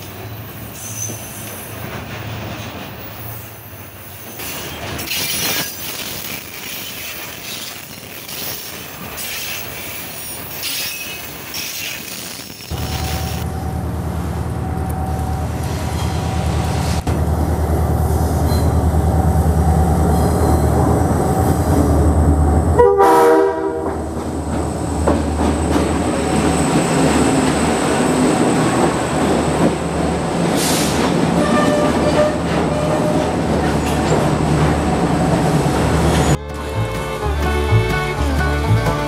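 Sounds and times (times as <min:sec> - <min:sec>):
diesel locomotive engines rumbling: 0:00.0 - 0:39.0
train horn blast: 0:22.8 - 0:24.0, 0:31.4 - 0:33.3.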